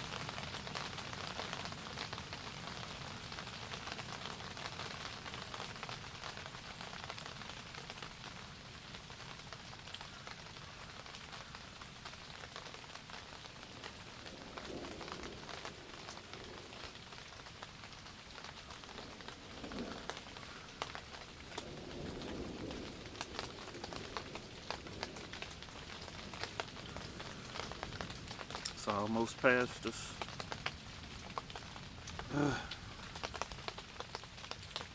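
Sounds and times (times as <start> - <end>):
steady rain falling: 0.0 - 34.9
sharp raindrop taps: 12.3 - 34.9.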